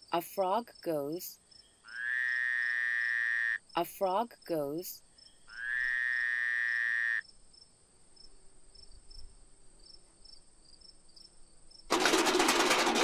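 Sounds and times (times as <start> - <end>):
frog call: 1.8 - 3.8, 5.4 - 7.3.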